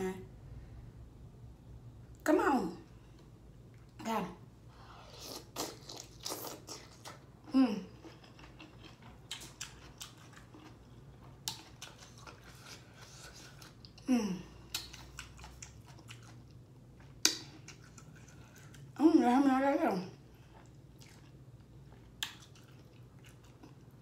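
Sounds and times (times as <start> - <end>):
person chewing shrimp: 5.0 - 7.3, 7.9 - 14.0, 14.6 - 19.0, 20.4 - 24.0.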